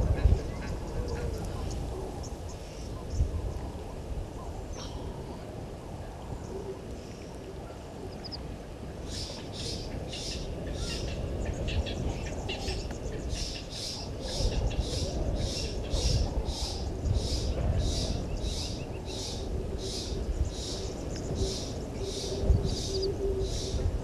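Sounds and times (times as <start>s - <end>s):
steady low background noise: 0.0s - 24.0s
birds calling: 6.4s - 23.8s.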